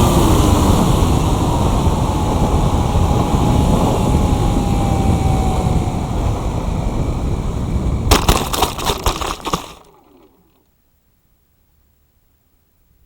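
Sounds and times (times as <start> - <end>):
sharp knocks and rattles: 8.1 - 10.6.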